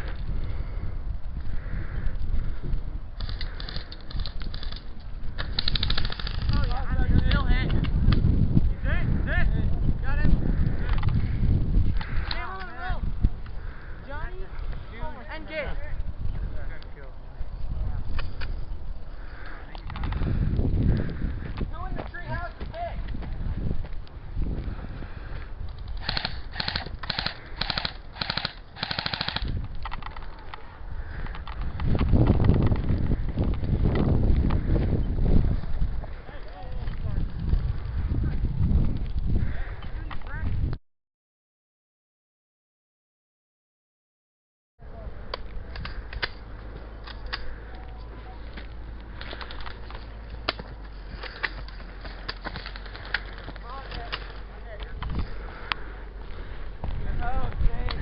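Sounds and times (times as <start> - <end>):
handling rumble: 0.0 - 40.7, 44.8 - 58.0
wind: 0.0 - 40.8, 44.8 - 58.0
sharp clicks and snaps: 3.2 - 6.8, 25.7 - 30.6
airsoft guns firing bursts: 5.4 - 6.8, 26.0 - 29.6.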